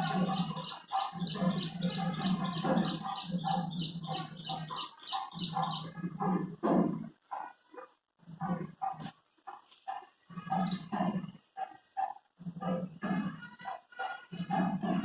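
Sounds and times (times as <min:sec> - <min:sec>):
birds chirping high: 0:00.0 - 0:06.0, 0:09.9 - 0:11.3, 0:13.5 - 0:15.0
lower bird calls: 0:00.0 - 0:06.0, 0:10.4 - 0:10.9.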